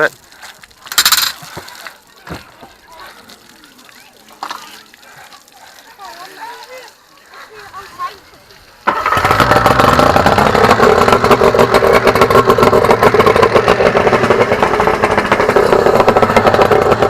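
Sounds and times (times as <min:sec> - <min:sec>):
small engine fast idle: 0:08.8 - 0:17.0.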